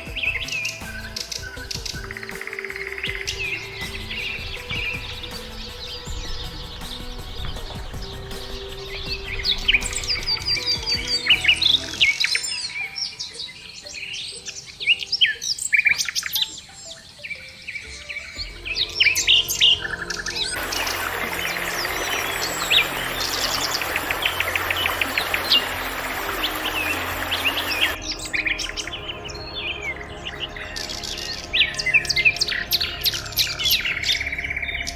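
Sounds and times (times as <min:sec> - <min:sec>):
small birds chirping: 0:00.0 - 0:34.9
even hiss: 0:19.0 - 0:28.0.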